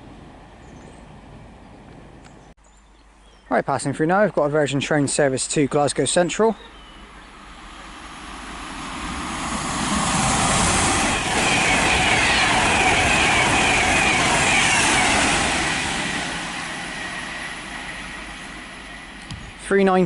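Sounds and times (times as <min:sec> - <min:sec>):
electric train passing at speed: 0:00.0 - 0:02.5, 0:05.6 - 0:20.0
train whine dropping in pitch: 0:06.9 - 0:19.6.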